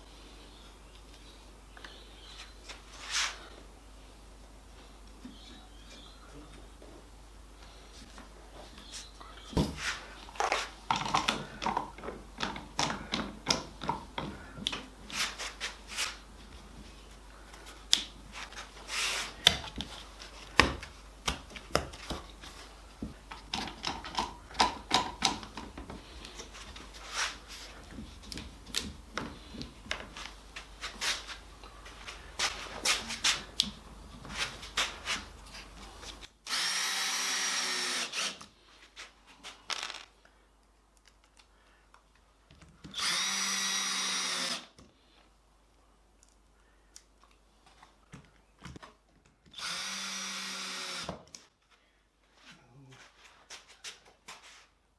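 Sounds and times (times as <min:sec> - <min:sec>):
cordless drill running: 0:36.5 - 0:38.4, 0:42.9 - 0:44.7, 0:49.6 - 0:51.2.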